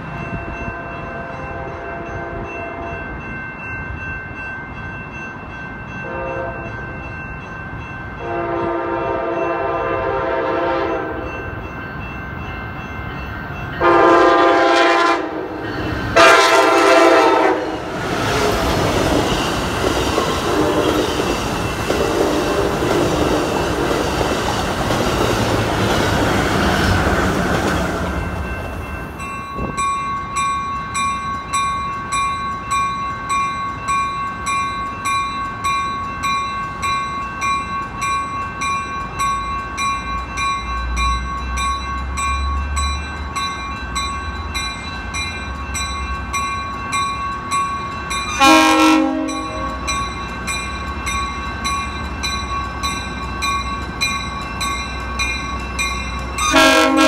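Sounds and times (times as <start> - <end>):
crossing bell ringing: 0.0 - 57.0
train horn: 0.6 - 3.0, 6.0 - 6.7, 8.2 - 11.3, 13.8 - 15.6, 16.2 - 18.5, 20.4 - 21.3, 21.9 - 23.9, 48.4 - 49.9, 56.4 - 57.0.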